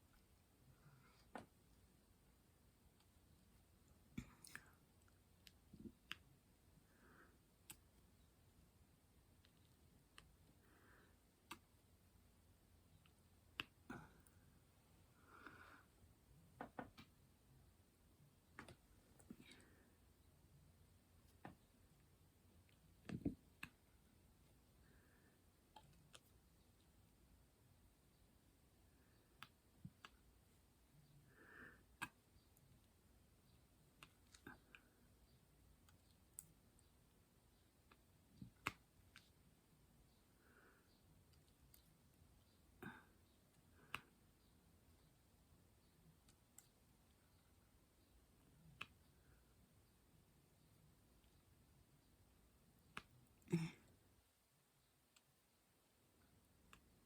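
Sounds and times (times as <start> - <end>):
faint clicks and taps: 16.5 - 17.3, 18.4 - 19.8, 21.2 - 27.0, 40.9 - 50.0.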